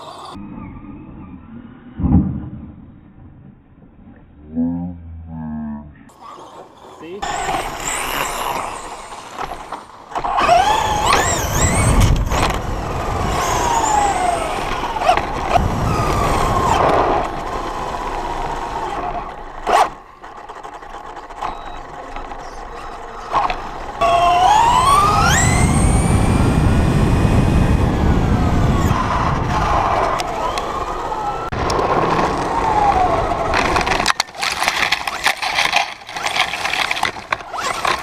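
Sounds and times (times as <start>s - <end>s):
rumbling noise: 0.3s - 6.2s
electric motor whining: 7.2s - 38.0s.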